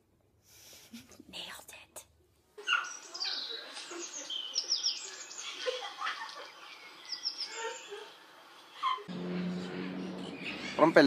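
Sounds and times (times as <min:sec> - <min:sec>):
birds chirping: 0:02.6 - 0:11.0.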